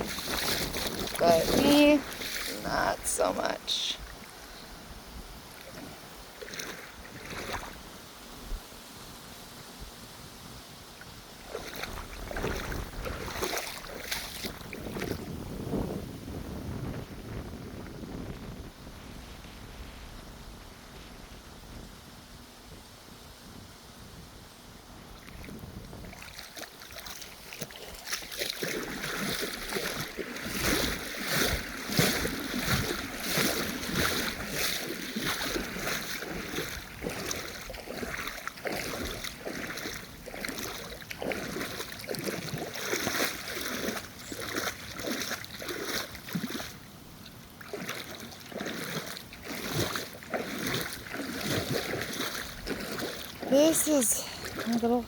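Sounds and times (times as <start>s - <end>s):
splashing steps through water: 0.0s - 4.6s, 5.5s - 7.9s, 11.4s - 15.4s, 25.2s - 55.0s.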